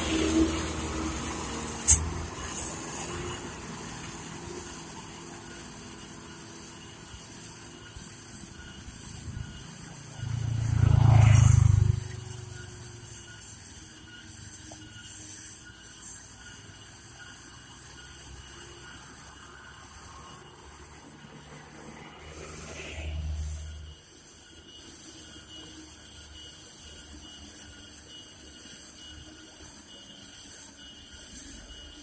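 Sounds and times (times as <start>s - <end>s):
truck diesel engine passing: 0.0s - 4.1s
road traffic noise: 0.0s - 28.5s.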